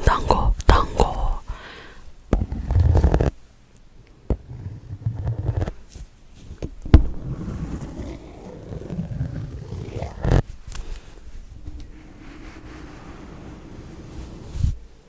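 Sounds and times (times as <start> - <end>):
rubbing and scraping on microphone: 2.4 - 3.4, 4.3 - 14.9.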